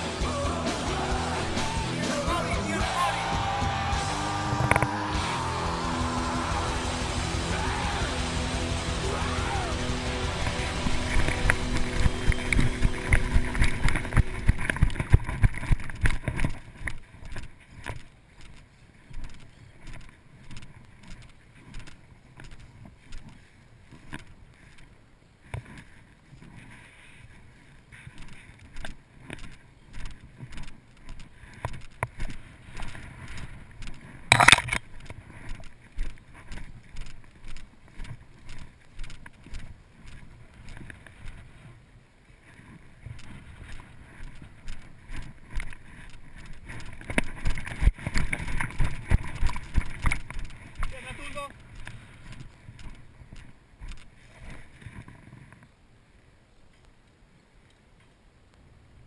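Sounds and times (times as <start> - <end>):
music: 0.0 - 13.9
rhythmic footsteps: 0.0 - 15.7
clothing and gear rustling: 10.1 - 55.8.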